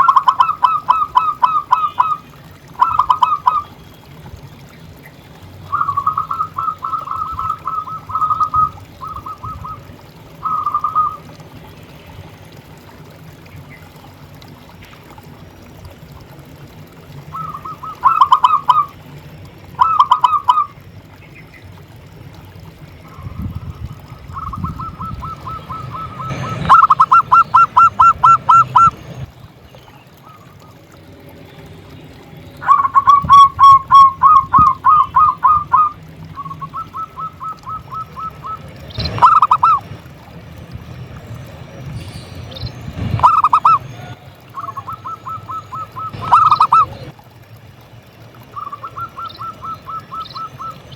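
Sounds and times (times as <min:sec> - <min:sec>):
dove cooing: 0:00.0 - 0:03.6, 0:05.7 - 0:11.4, 0:17.3 - 0:19.0, 0:19.7 - 0:20.8, 0:23.1 - 0:29.3, 0:32.6 - 0:40.0, 0:43.0 - 0:47.1, 0:48.5 - 0:50.8.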